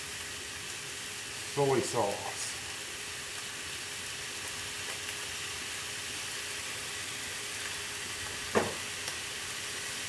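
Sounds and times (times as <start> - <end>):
rice sizzling on griddle: 0.0 - 10.0.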